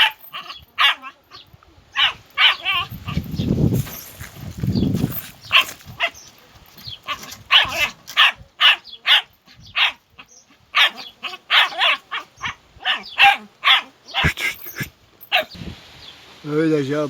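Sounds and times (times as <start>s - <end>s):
dog barking: 0.0s - 3.2s, 5.5s - 6.3s, 7.1s - 15.6s.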